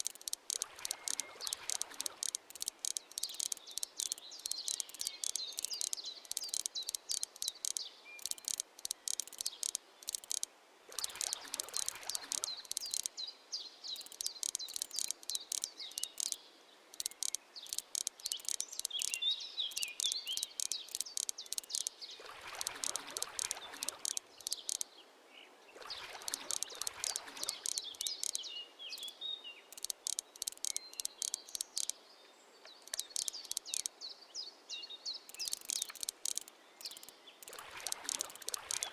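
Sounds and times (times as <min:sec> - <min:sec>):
crickets chirping: 0:00.0 - 0:13.1, 0:14.0 - 0:16.4, 0:17.0 - 0:21.9, 0:26.2 - 0:28.4, 0:29.0 - 0:32.0, 0:32.8 - 0:34.0, 0:35.3 - 0:38.9
bird chirps: 0:00.0 - 0:25.0, 0:25.8 - 0:38.9.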